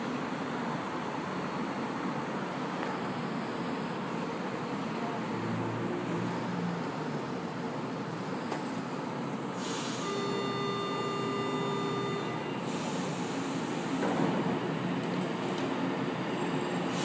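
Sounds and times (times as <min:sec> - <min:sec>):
train rail noise: 0:04.4 - 0:17.0
steady high-pitched tone: 0:09.7 - 0:14.0.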